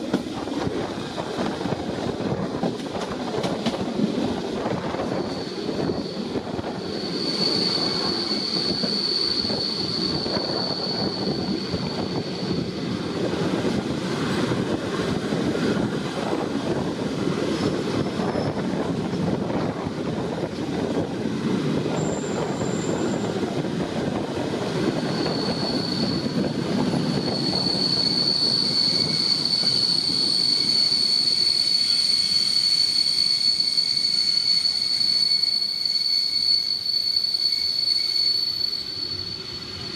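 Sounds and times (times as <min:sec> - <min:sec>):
train wheels rumbling on track: 0:00.0 - 0:39.9
high wheel squeal: 0:04.7 - 0:14.8, 0:17.5 - 0:19.0, 0:21.8 - 0:23.6, 0:24.7 - 0:39.9.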